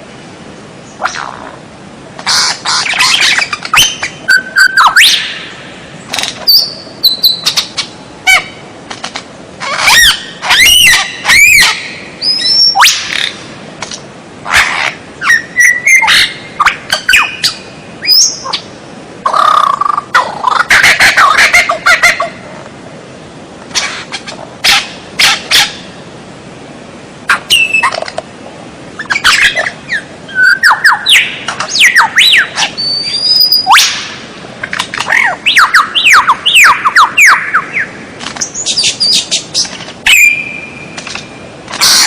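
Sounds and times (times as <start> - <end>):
songbird singing varied song: 2.3 - 8.6, 9.7 - 13.5, 14.5 - 18.7, 27.3 - 28.0, 29.0 - 34.1, 35.0 - 41.4.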